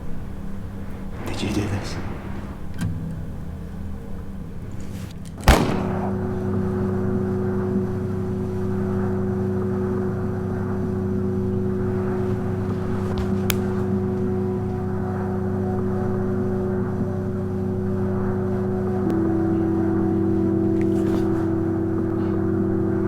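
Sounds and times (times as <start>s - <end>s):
low drone of held tones: 0.0s - 23.0s
sharp bang: 5.4s - 6.8s.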